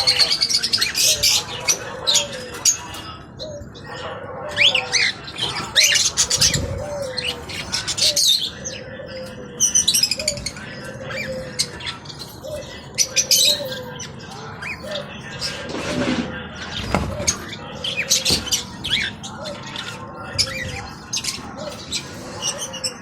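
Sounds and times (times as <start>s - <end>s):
caged birds chirping and squawking: 0.0s - 23.0s
low cooing call: 6.3s - 14.0s.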